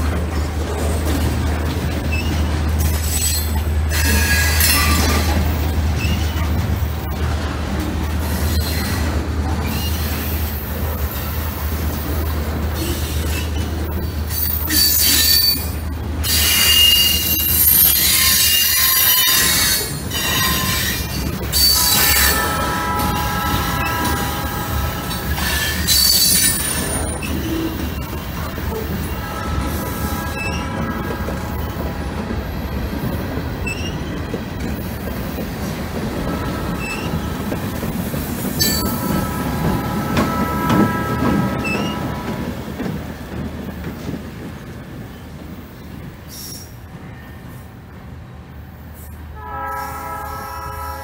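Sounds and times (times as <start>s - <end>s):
freight train rumbling: 0.0s - 51.0s
wheels squealing on rails: 0.3s - 7.3s, 8.0s - 43.2s, 46.2s - 47.5s.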